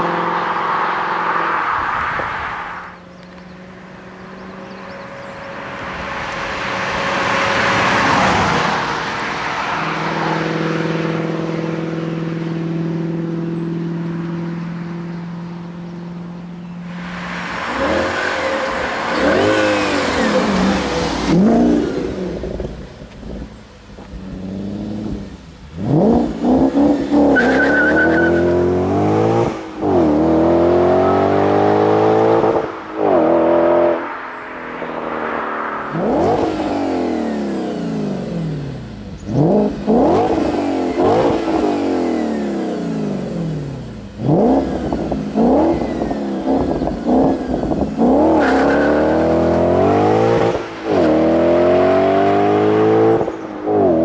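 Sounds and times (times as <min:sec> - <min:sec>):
car exhaust accelerating hard: 0:16.9 - 0:54.0.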